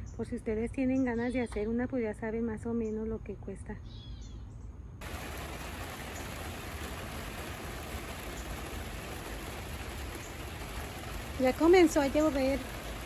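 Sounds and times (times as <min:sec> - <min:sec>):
steady rain falling: 0:05.0 - 0:13.0.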